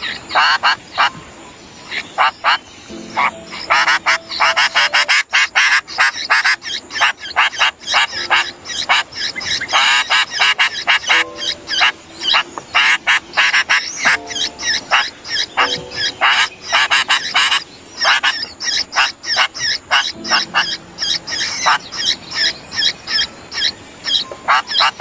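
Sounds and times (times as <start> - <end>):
bird harsh chirps: 1.9 - 25.0
low bird notes: 2.9 - 6.5, 7.9 - 18.5, 19.9 - 25.0.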